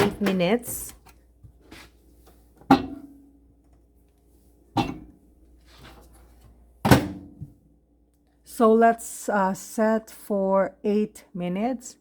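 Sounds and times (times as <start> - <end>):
microwave door clunking: 4.8 - 5.1.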